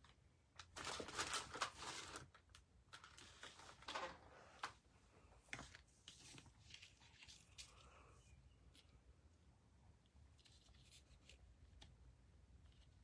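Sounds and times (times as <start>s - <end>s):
paper rustling and sliding: 5.5s - 7.8s.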